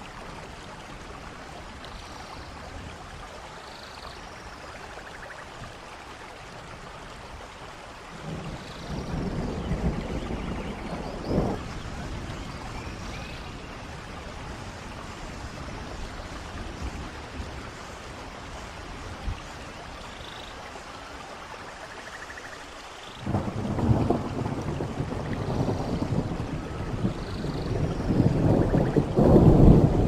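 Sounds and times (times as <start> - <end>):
running water: 0.0 - 30.0
steady rain: 0.0 - 30.0
thunder rumbling: 8.2 - 17.7, 23.2 - 30.0.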